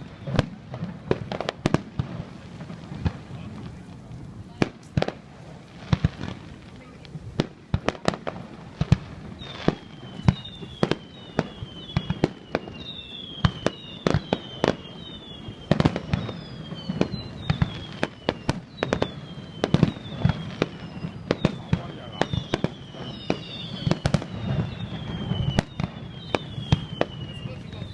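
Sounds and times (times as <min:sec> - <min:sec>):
falling whistles: 0:00.0 - 0:00.6, 0:09.3 - 0:27.9
fireworks bangs and pops: 0:00.0 - 0:27.9.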